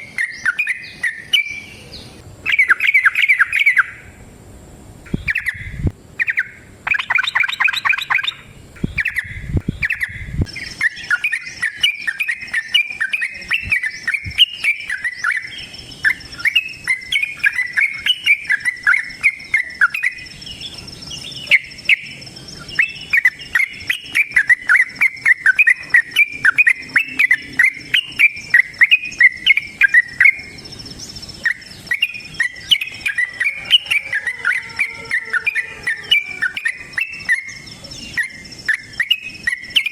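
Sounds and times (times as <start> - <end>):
bird singing chattering notes: 0.0 - 4.2, 5.0 - 39.9.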